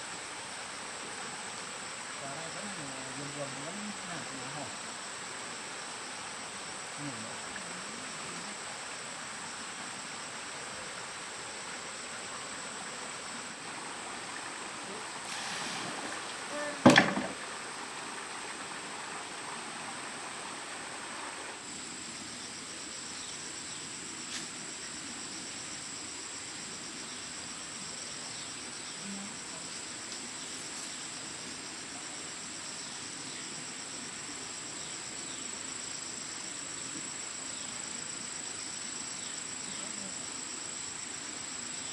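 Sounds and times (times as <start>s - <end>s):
insects droning: 0.0s - 41.9s
sharp knock: 16.8s - 17.4s.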